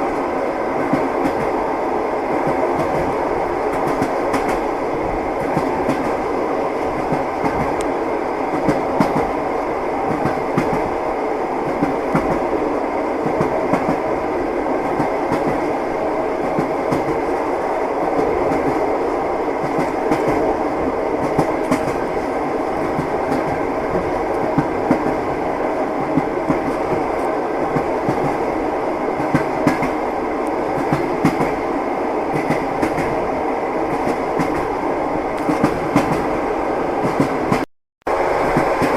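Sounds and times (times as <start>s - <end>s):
moving train rumble: 0.0s - 38.9s
train wheels clacking: 2.4s - 4.7s, 6.9s - 7.9s, 8.5s - 9.3s, 19.6s - 20.5s, 21.2s - 22.1s, 29.2s - 31.6s, 32.3s - 33.2s, 35.4s - 36.3s, 37.0s - 37.6s.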